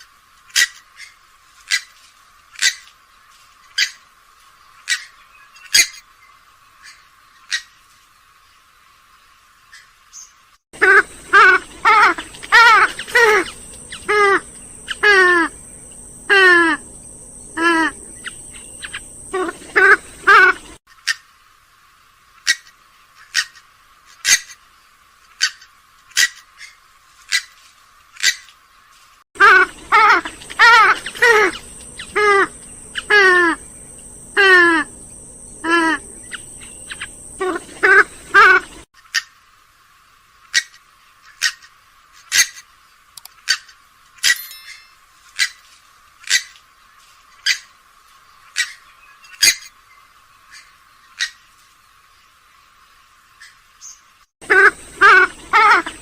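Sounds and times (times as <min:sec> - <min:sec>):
swamphen calling: 0:10.2 - 0:21.2, 0:29.4 - 0:38.8, 0:53.4 - 0:56.0.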